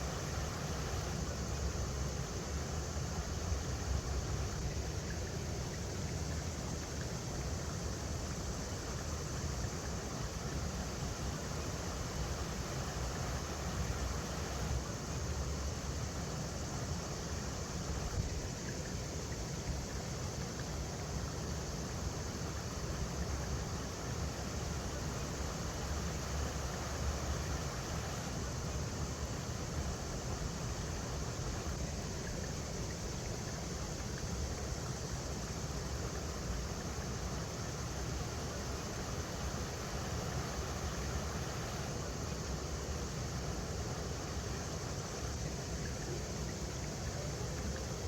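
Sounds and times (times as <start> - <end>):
river water rushing over rocks: 24.1 - 28.5.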